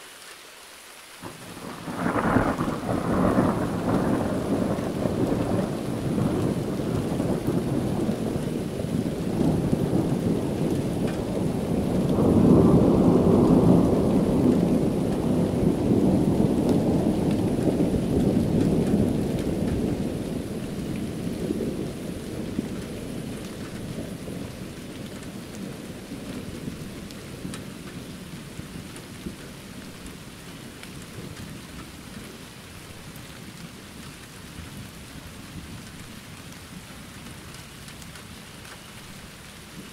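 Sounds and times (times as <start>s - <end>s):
rain falling: 0.0s - 39.9s
thunder rumbling: 1.2s - 32.4s.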